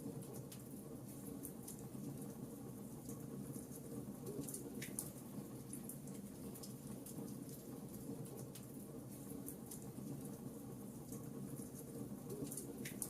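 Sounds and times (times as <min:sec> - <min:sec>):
wood fire crackling and popping: 0:11.1 - 0:13.0.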